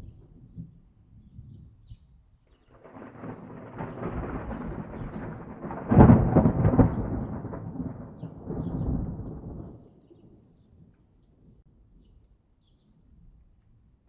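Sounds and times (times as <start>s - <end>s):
thunder rolling: 2.7s - 9.9s.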